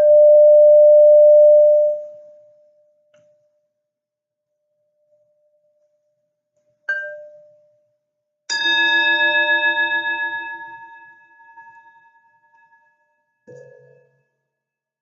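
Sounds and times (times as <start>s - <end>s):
singing bowl ringing: 0.0s - 2.1s, 8.5s - 13.2s.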